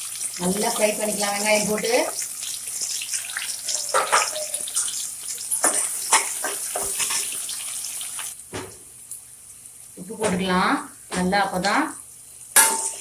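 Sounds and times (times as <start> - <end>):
onions sizzling in oil: 0.0 - 13.0
spoon knocking and scraping pan: 3.8 - 4.9, 5.6 - 7.4, 12.6 - 13.0.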